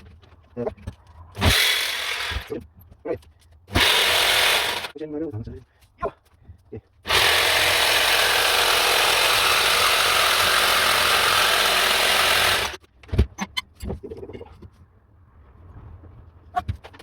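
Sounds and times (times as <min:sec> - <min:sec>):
handheld power tool running: 0:01.4 - 0:02.5, 0:03.7 - 0:04.9, 0:07.1 - 0:12.8.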